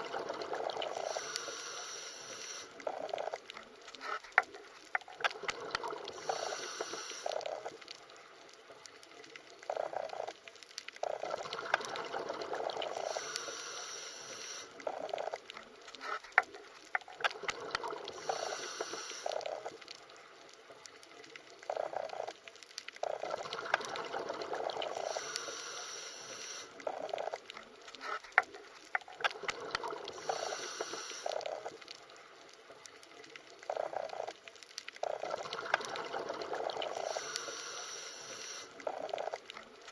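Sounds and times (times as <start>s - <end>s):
underwater bubbling and gurgling: 0.0s - 39.9s
small clicks: 0.9s - 12.0s, 12.8s - 24.0s, 24.9s - 36.2s, 36.8s - 39.9s
high hiss: 1.0s - 2.8s, 6.2s - 7.4s, 13.0s - 14.7s, 18.2s - 19.4s, 25.0s - 26.8s, 30.2s - 31.4s, 37.0s - 38.8s.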